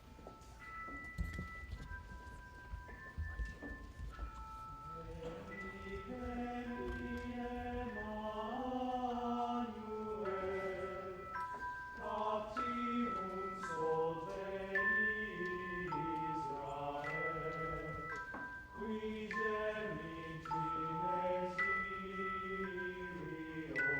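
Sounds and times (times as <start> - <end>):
thin high tones: 0.0 - 23.9
choir singing held chords: 4.8 - 23.9.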